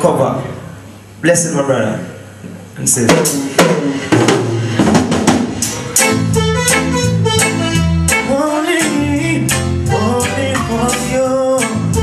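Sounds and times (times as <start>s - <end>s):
live band playing: 2.1s - 12.0s
drum fill: 3.0s - 7.9s.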